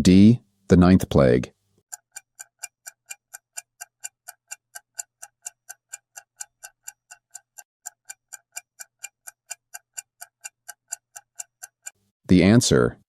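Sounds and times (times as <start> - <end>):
clock ticking: 1.8 - 12.1.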